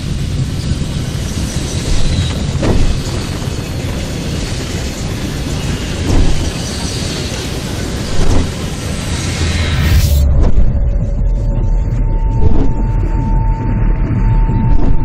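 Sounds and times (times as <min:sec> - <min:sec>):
train carriage rumbling on rails: 0:00.0 - 0:13.6
loud thuds: 0:01.9 - 0:03.4, 0:06.0 - 0:06.7, 0:08.1 - 0:11.4, 0:12.2 - 0:13.2.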